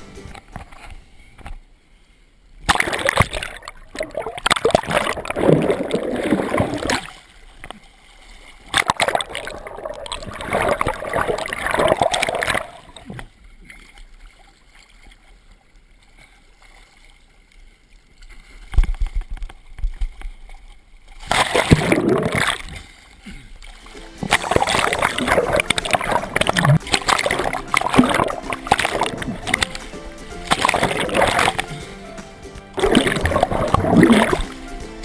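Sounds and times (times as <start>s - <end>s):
water splashing around swimmer: 2.6s - 35.0s.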